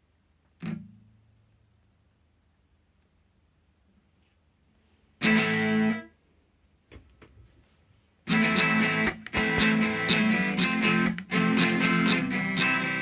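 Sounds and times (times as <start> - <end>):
clean electric guitar strumming: 5.2 - 6.1, 8.3 - 13.0.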